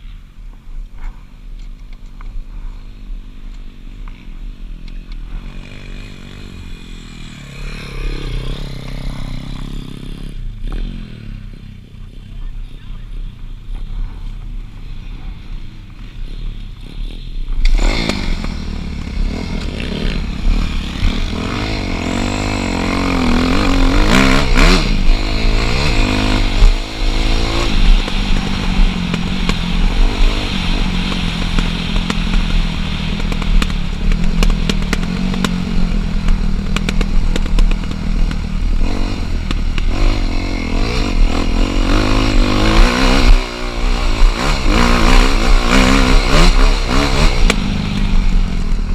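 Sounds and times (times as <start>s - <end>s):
dirt bike engine revving: 3.9s - 11.9s, 16.0s - 48.9s.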